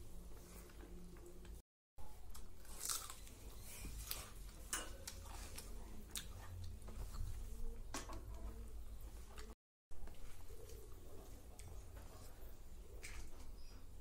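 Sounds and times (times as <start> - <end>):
person chewing food: 2.1 - 7.8.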